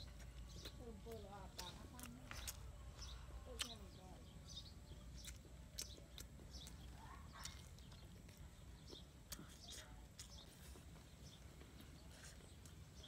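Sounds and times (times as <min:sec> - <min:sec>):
open-mouth chewing smacks: 0:05.1 - 0:11.4.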